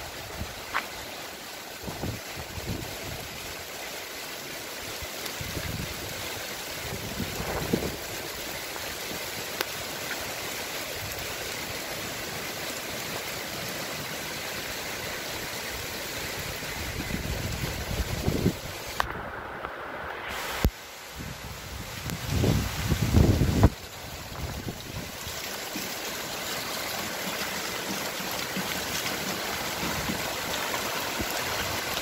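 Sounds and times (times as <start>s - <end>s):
rain falling on foliage: 0.0s - 32.0s
wind thumps on microphone: 6.9s - 8.1s.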